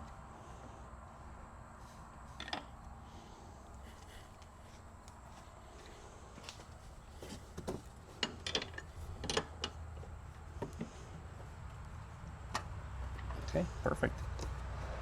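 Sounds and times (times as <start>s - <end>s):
tools and bike parts clicking: 8.1s - 9.8s.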